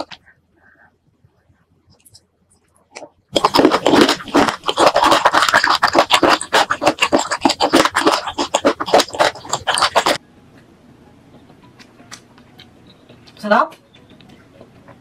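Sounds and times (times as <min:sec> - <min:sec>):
clicky chewing mouth sounds: 0:02.9 - 0:10.2.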